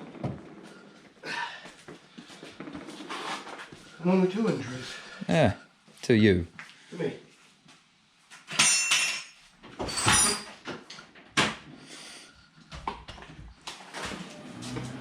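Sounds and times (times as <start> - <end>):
metallic jingle and clatter: 8.5 - 10.6.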